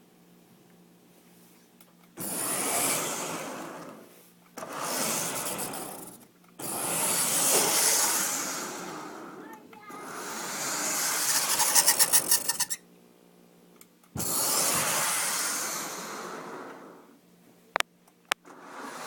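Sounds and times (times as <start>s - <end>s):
model locomotive harsh rasping: 10.0s - 12.8s.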